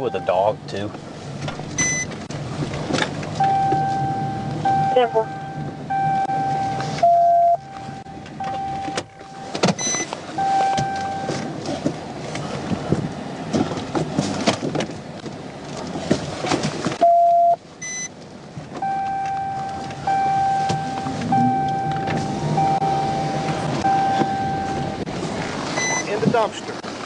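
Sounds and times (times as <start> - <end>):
short high beeps: 1.8 - 2.1, 3.4 - 11.4, 17.0 - 18.1, 18.8 - 25.0, 25.8 - 26.1
electronic tone: 3.4 - 11.3, 17.0 - 18.1, 18.8 - 25.0.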